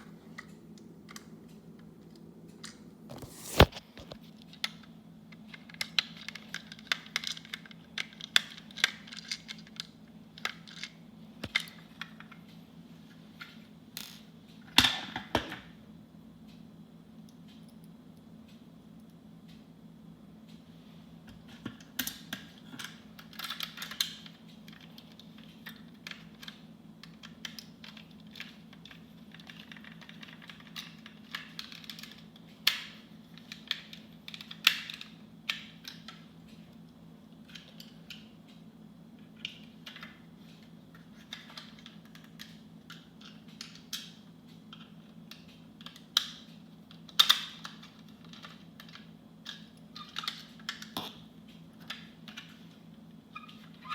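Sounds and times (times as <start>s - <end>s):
plastic toy parts clicking: 5.5s - 12.4s, 21.9s - 36.2s, 40.9s - 51.0s.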